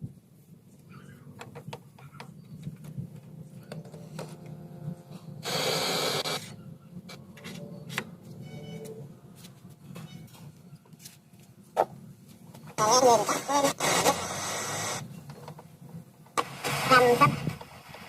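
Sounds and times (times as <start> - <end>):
static hiss burst: 5.4 - 6.5, 12.8 - 15.1, 16.4 - 18.0
radio crackling clicks: 16.3 - 18.0.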